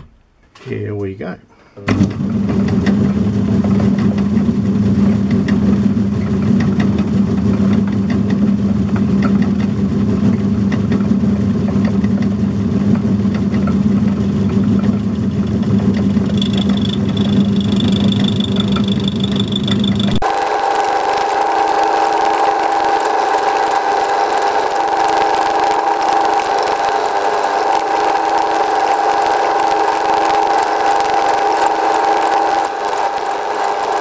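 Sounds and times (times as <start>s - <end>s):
lathe motor hum: 15.0s - 34.0s
high whine of metal cutting: 16.0s - 34.0s.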